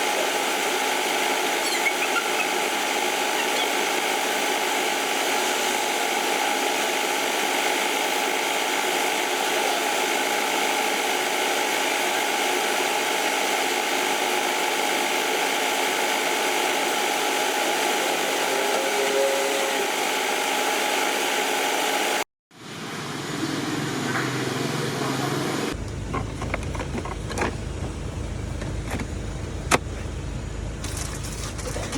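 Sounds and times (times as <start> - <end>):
motor running steadily: 0.0 - 22.2.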